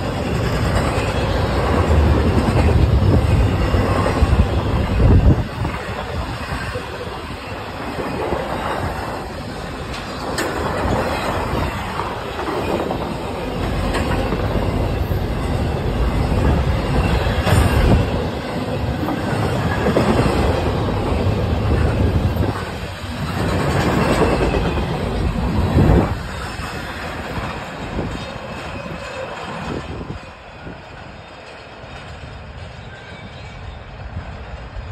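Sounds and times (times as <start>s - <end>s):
freight train cars rolling: 0.0s - 34.9s.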